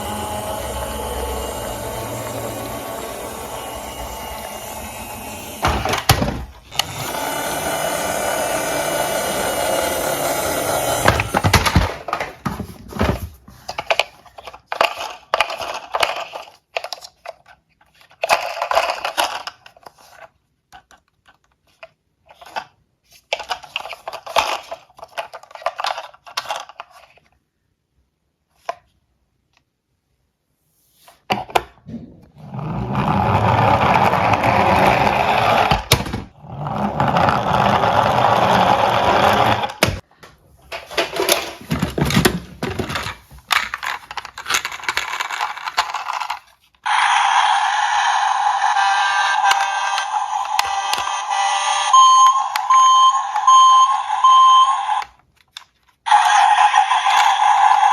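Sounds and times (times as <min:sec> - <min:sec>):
toy cars clattering and clicking: 0:00.0 - 0:27.4, 0:40.6 - 0:57.9
toy cars rolling down a slope: 0:00.0 - 0:27.4, 0:32.3 - 0:40.0, 0:40.6 - 0:57.9.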